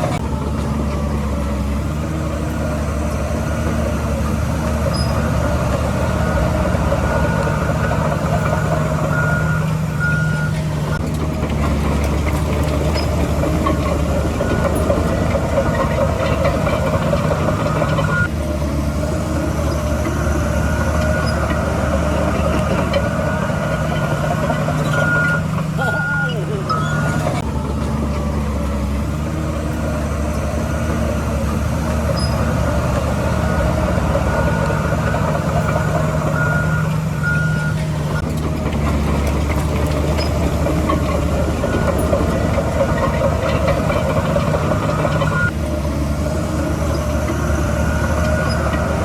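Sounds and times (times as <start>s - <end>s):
diesel construction machinery running: 0.0s - 49.0s
reversing alarm beeps: 4.5s - 11.1s, 12.8s - 18.3s, 20.0s - 27.4s, 32.1s - 38.3s, 40.2s - 45.6s.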